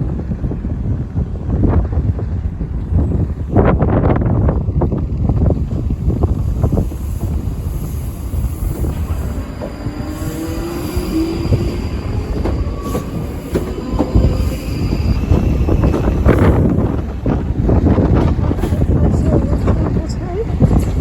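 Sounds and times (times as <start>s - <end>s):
train wheels rumbling on rails: 0.0s - 21.0s
high wheel squealing: 6.7s - 16.7s.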